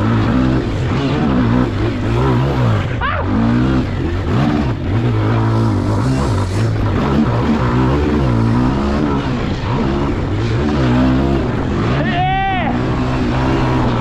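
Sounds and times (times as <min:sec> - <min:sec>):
pit bike engine revving: 0:00.0 - 0:14.0.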